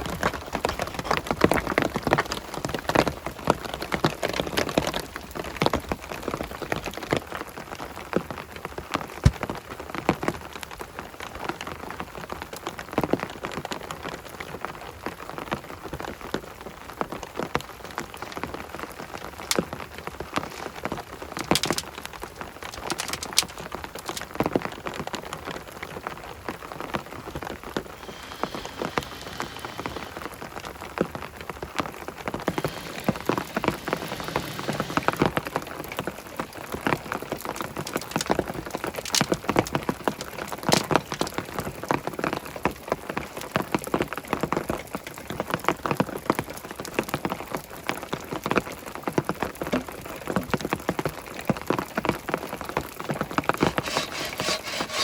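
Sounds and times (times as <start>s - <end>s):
rain drops ticking on hard surface: 10.1s - 53.4s.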